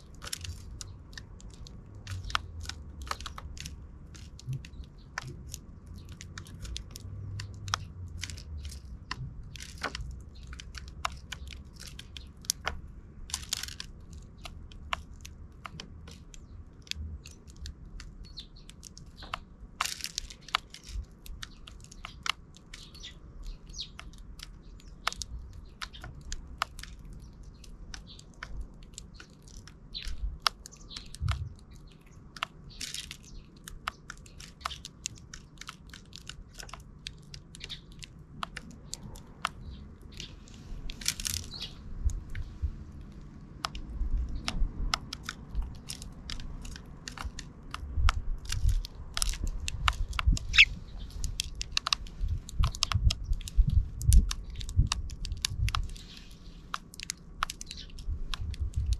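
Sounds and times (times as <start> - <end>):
birds pecking at seed: 0.0 - 58.9
short bird chirps: 50.5 - 50.8.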